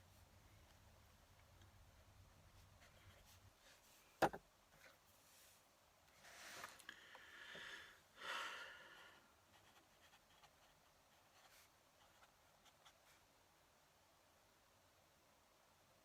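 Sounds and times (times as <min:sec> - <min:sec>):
pen nib scratching on paper: 0:09.5 - 0:13.0.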